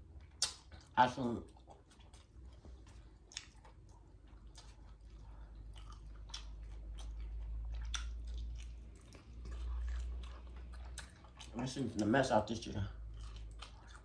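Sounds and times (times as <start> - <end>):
crunchy chewing of fried chicken: 0.0 - 14.0
wet mouth clicks: 0.3 - 0.9.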